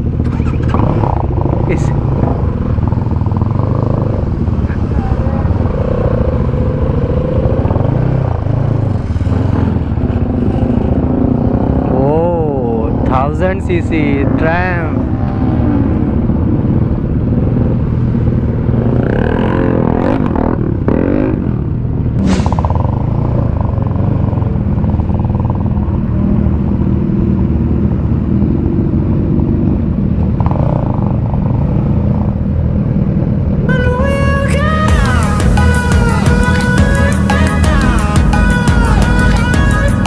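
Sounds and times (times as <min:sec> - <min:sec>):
motorcycle engine running: 0:00.0 - 0:40.0
road traffic: 0:00.0 - 0:40.0
background music: 0:33.7 - 0:40.0.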